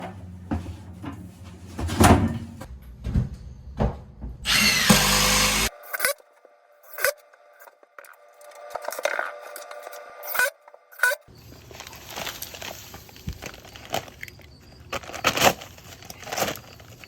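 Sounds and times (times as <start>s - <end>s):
loud power tool burst: 4.5s - 5.7s
power tool motor running: 4.5s - 5.7s.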